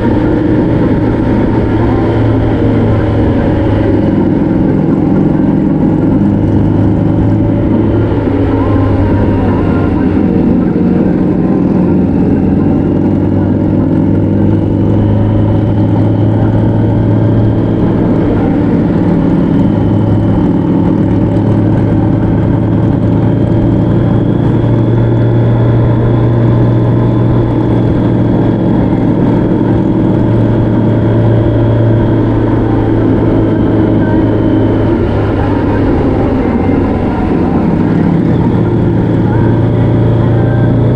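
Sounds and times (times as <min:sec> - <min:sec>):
vehicle engine running: 0:00.0 - 0:40.9
wind rush and road noise: 0:00.0 - 0:40.9.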